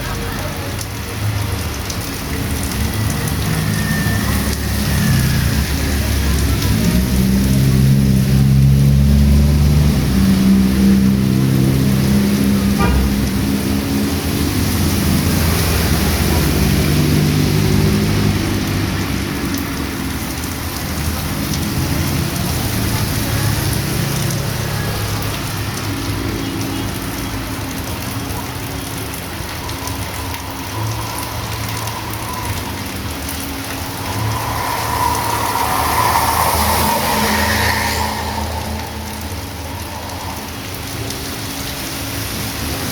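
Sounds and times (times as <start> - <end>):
heavy rain on street: 0.0 - 42.9
passing vehicle engine: 1.8 - 20.4, 27.0 - 42.8.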